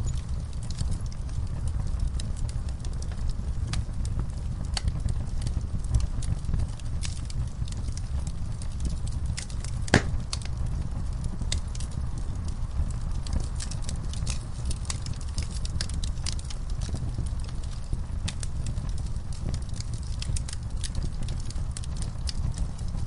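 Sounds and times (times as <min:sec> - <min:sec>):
low fire rumble: 0:00.0 - 0:23.0
wood fire crackling and popping: 0:00.0 - 0:23.0.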